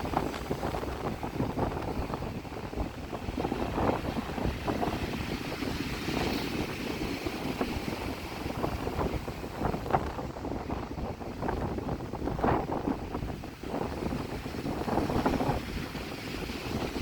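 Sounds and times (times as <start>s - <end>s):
surf washing and splashing: 0.0s - 17.0s
wind buffeting microphone: 0.0s - 17.0s.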